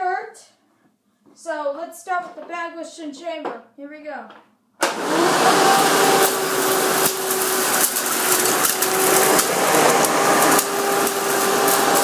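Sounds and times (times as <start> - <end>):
vacuum cleaner motor whine: 4.8 - 12.0.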